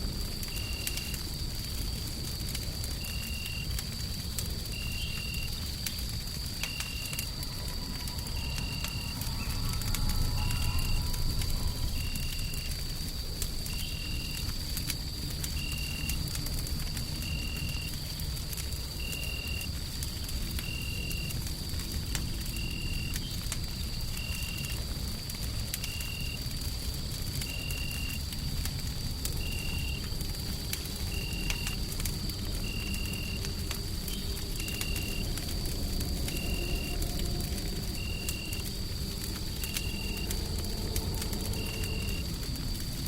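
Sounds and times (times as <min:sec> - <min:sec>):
wood fire crackling: 0:00.0 - 0:43.0
faint high whine: 0:06.6 - 0:14.3.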